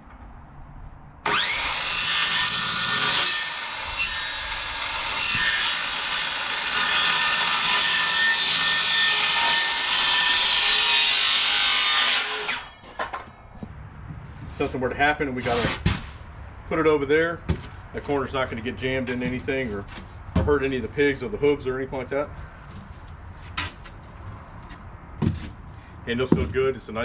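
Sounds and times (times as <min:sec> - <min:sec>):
circular saw cutting plywood: 0:01.2 - 0:12.9.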